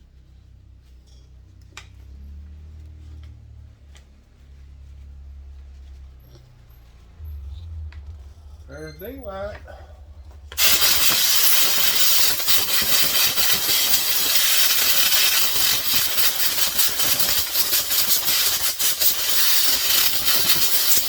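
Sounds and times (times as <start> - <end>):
compressed air hissing: 10.6 - 21.0.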